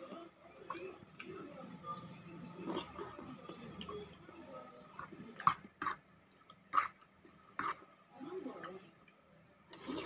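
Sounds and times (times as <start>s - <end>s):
chewing noodles: 0.0s - 7.9s.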